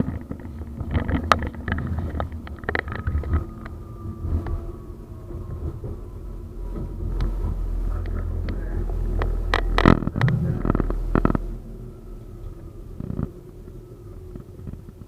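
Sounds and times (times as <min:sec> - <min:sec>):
tram rumbling on rails: 0:00.0 - 0:15.0.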